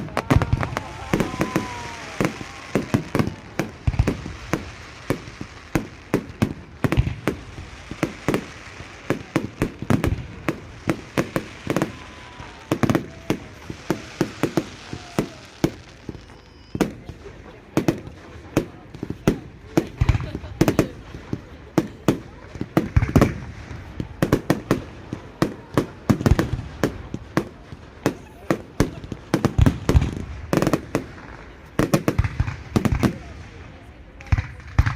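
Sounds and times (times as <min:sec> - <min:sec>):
fireworks bangs and crackles: 0:00.0 - 0:34.9.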